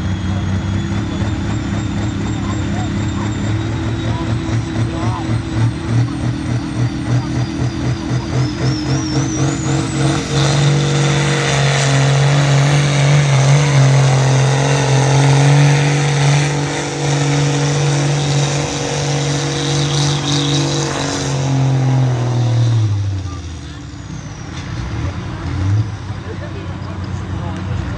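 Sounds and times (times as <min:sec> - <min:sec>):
tractor engine at full throttle: 0:00.0 - 0:27.9
high whistle: 0:06.4 - 0:21.6.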